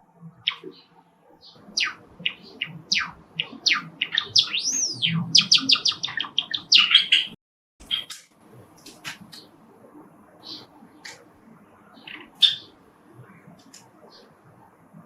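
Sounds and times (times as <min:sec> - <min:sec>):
sparrow chirping: 0:00.4 - 0:08.2, 0:10.4 - 0:11.2, 0:11.8 - 0:14.3.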